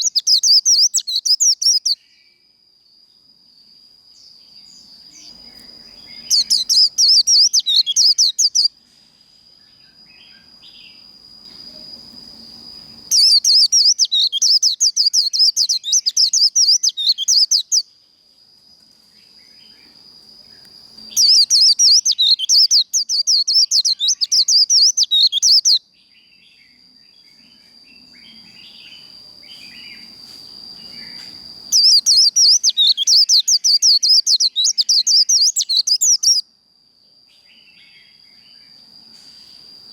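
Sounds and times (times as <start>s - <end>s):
bird chattering song: 0.0s - 2.0s, 5.2s - 8.7s, 13.1s - 17.9s, 21.1s - 26.3s, 30.8s - 36.4s.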